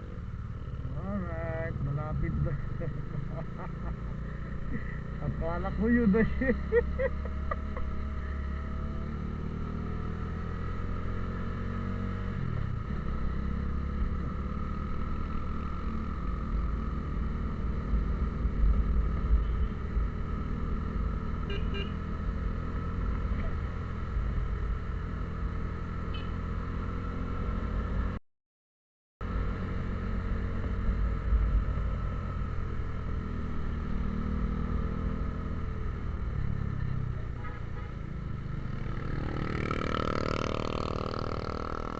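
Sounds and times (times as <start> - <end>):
low road rumble: 0.0 - 28.2, 29.2 - 41.9
vehicle engine drone: 0.0 - 28.2, 29.2 - 41.9.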